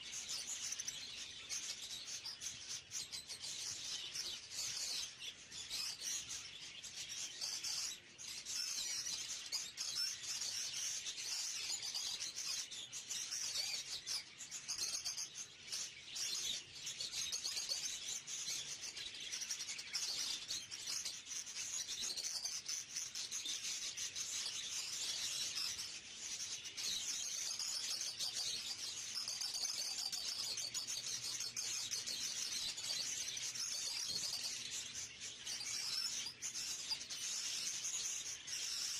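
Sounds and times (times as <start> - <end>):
caged birds chirping: 0.0 - 38.9.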